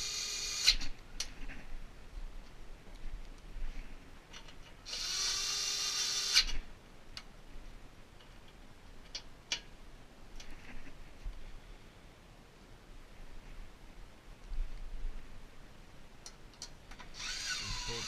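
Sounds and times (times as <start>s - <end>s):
power drill driving a bolt: 0.0s - 0.9s, 4.9s - 6.6s, 17.0s - 18.0s.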